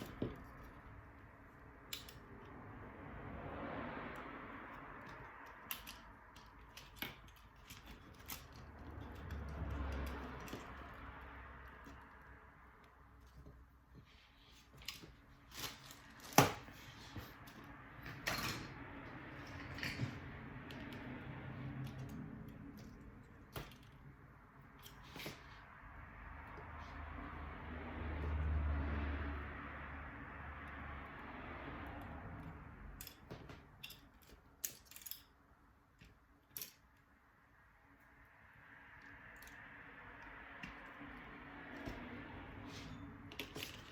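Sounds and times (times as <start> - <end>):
small parts clicking and knocking: 0.0 - 2.7, 4.1 - 25.8, 31.9 - 37.3, 38.9 - 42.0, 42.6 - 43.9.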